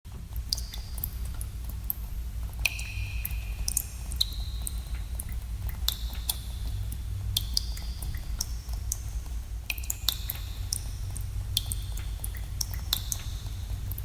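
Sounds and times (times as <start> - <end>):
steady low rumble: 0.1 - 14.0
water drops plinking: 0.5 - 2.0, 2.6 - 6.5.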